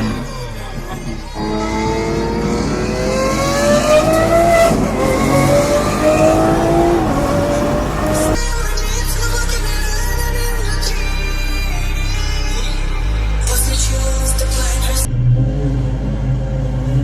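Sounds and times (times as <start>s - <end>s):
car engine accelerating: 0.0s - 9.0s.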